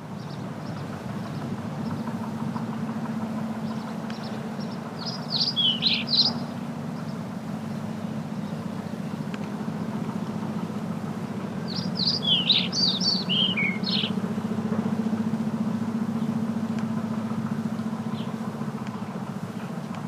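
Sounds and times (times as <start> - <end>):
motor droning: 0.2 - 20.0
small bird chirping: 3.6 - 7.2, 11.6 - 14.2.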